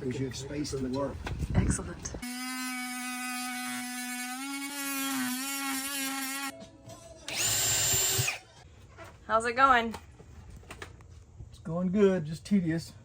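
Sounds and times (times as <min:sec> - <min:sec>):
power tool motor whining: 0:07.3 - 0:08.4.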